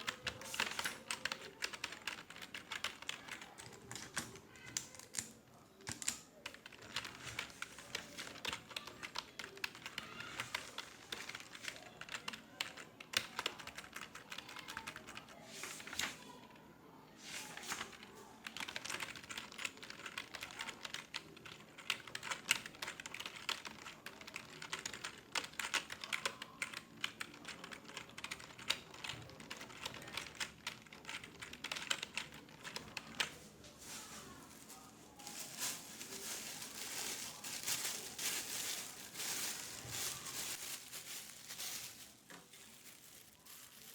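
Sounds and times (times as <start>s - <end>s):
fast typing on computer keyboard: 0.0s - 15.4s, 17.7s - 33.3s.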